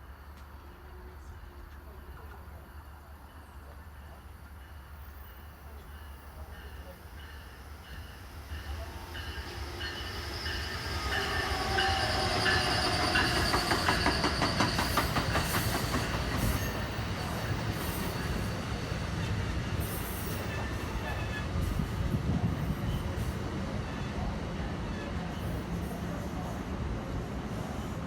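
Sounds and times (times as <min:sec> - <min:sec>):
passenger train passing: 0:00.0 - 0:28.0
train wheels clicking over rail joints: 0:11.1 - 0:17.0.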